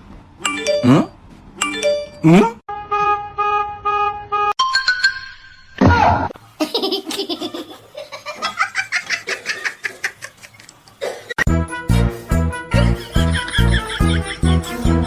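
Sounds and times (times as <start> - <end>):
person laughing hard: 13.0 - 14.7.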